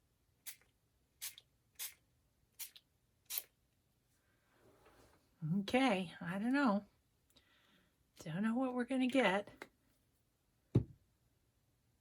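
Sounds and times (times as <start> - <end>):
pump spray bottle spritzes: 0.5 - 2.0.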